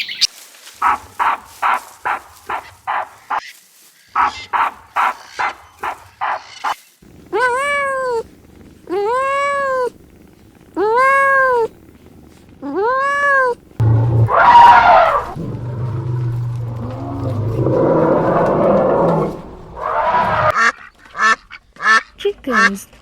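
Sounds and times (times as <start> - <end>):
cat meowing: 7.3 - 17.3.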